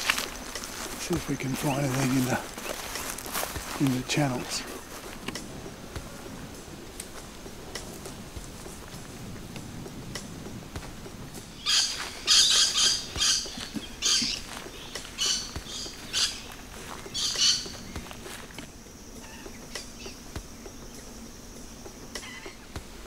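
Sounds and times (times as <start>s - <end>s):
bird calling loudly: 11.5s - 18.3s.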